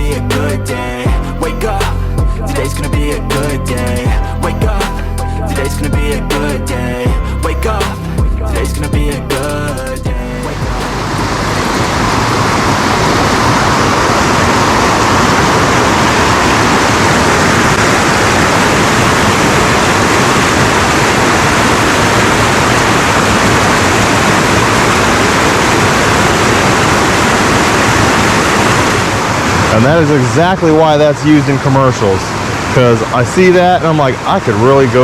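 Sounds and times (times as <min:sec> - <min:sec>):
mountain stream rushing: 0:10.2 - 0:35.0.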